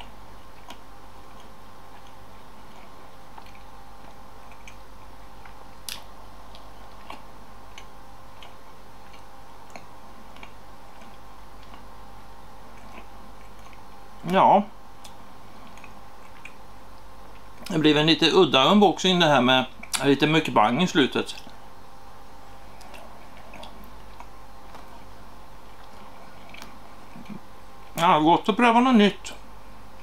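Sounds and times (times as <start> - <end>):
steady low hum: 0.0 - 30.0
soft chewing mouth clicks: 0.5 - 11.9, 12.7 - 14.0, 15.0 - 17.8, 19.7 - 20.1, 22.7 - 28.0.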